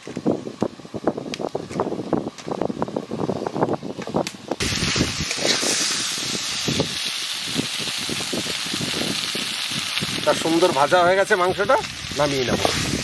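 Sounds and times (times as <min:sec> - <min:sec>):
chicken sizzling in oil: 0:04.6 - 0:13.0.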